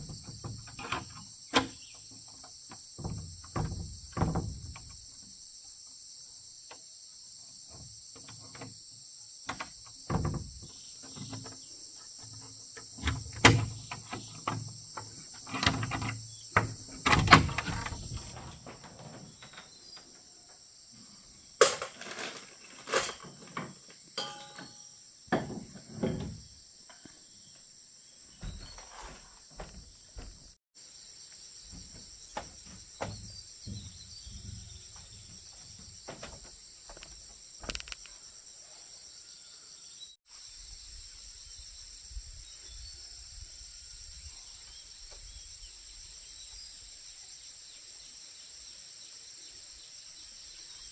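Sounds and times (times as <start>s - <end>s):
insects chorus: 0.0s - 50.9s
knocks thuds and clatters: 3.0s - 5.0s, 9.5s - 20.0s, 21.6s - 26.6s, 31.7s - 37.9s.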